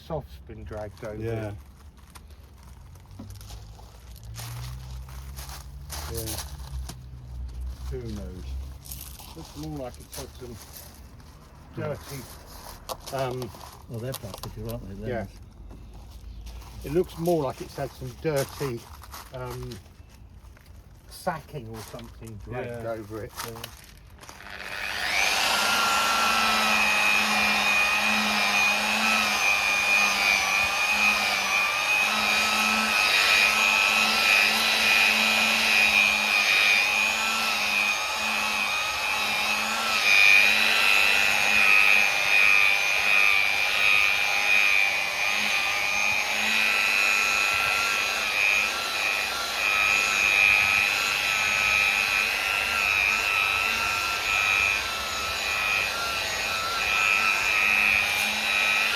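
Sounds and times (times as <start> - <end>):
electric polisher motor whine: 24.2 - 58.9.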